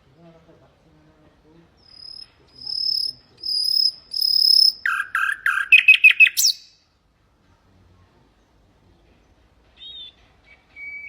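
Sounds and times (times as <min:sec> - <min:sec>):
nightingale singing: 0:01.8 - 0:06.8.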